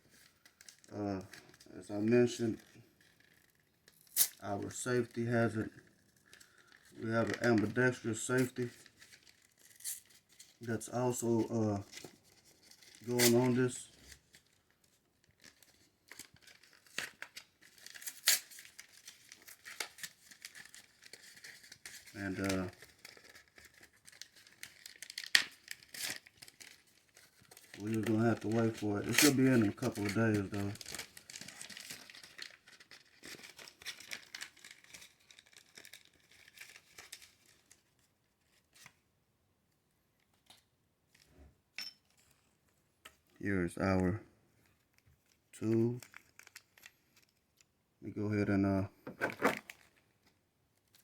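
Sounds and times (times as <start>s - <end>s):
plastic packaging rustling: 5.8s - 39.0s, 44.8s - 47.7s, 49.0s - 51.0s.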